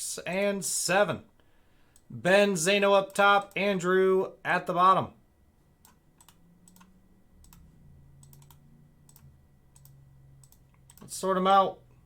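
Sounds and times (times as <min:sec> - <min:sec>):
low hum: 0:04.3 - 0:12.0
computer keys clicking: 0:05.8 - 0:11.2.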